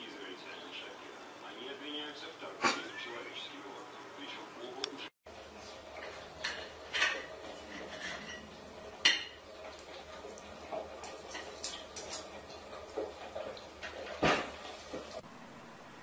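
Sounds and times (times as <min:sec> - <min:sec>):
low room noise: 0:00.0 - 0:16.0
dishes and cutlery clinking: 0:05.7 - 0:15.2.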